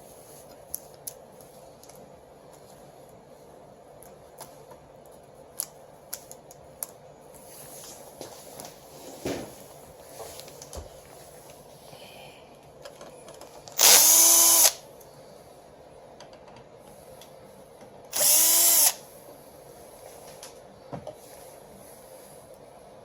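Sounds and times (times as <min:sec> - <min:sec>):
cordless drill bursts: 0:13.8 - 0:14.8, 0:18.1 - 0:19.0.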